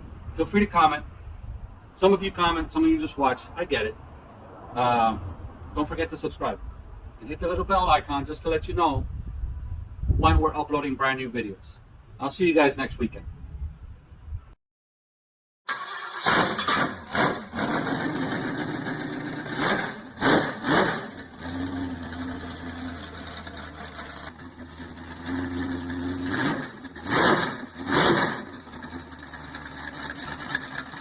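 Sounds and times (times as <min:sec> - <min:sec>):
car engine revving and idling: 0:16.2 - 0:31.0.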